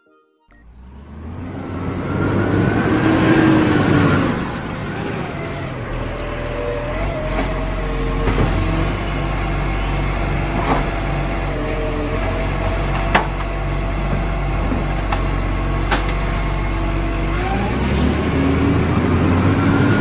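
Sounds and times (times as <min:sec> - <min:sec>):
engine running and revving: 0:00.5 - 0:20.0.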